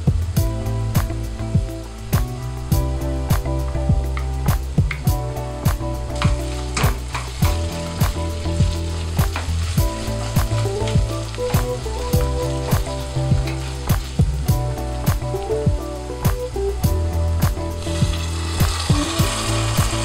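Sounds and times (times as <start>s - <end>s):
background music with steady beat: 0.0s - 20.0s
food sizzling in a pan: 0.1s - 20.0s
stirring in a pan: 6.1s - 14.2s.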